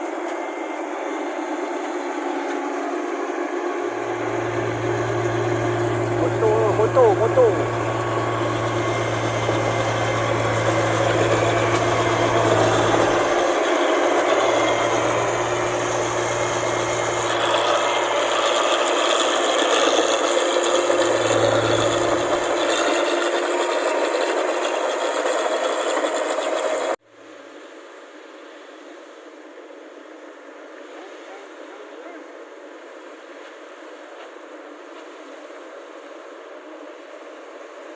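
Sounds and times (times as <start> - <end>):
low engine hum: 0.1 - 24.6
combine harvester rattling: 0.1 - 27.0.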